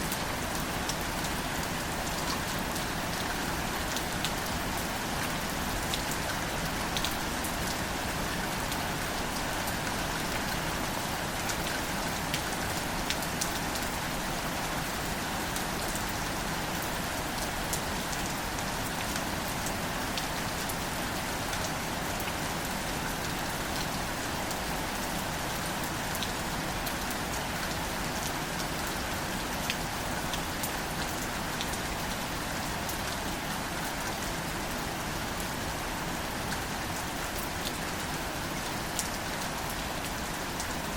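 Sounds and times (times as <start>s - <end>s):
gentle rain pattering: 0.0s - 40.9s.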